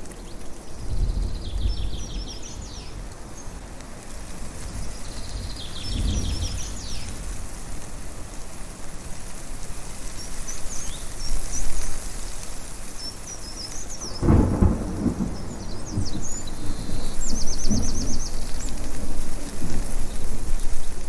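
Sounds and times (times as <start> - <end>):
birds chirping: 0.1 - 3.6, 12.9 - 20.9
thunder rumbling: 0.6 - 3.7, 4.4 - 7.9, 13.8 - 21.0.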